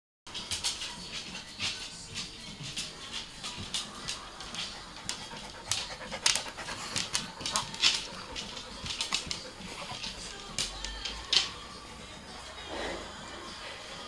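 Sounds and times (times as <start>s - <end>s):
dog panting: 3.7s - 11.0s.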